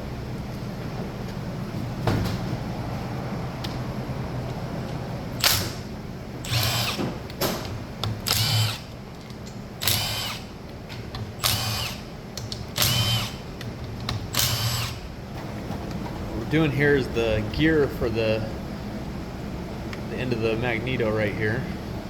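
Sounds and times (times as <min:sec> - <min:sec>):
impact wrench whirring bursts: 0:05.4 - 0:07.2, 0:08.2 - 0:09.0, 0:09.8 - 0:10.6, 0:11.4 - 0:12.1, 0:12.7 - 0:13.5, 0:14.3 - 0:15.1.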